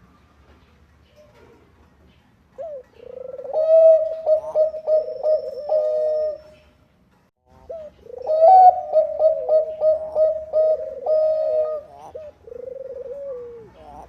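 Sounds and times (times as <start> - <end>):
dove cooing: 2.5 - 6.8, 7.6 - 14.0.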